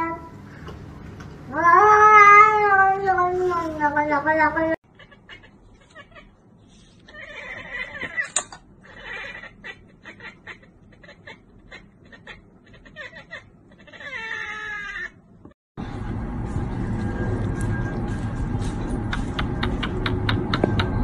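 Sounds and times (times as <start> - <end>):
cat chattering chirps: 4.9 - 15.1.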